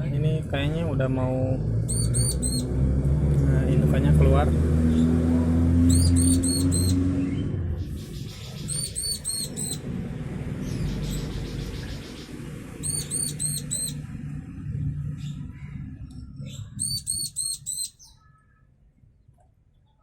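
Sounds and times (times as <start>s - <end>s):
low engine hum: 0.0s - 17.7s
bird chirping rapidly: 1.8s - 2.7s, 5.8s - 14.1s, 16.2s - 18.4s.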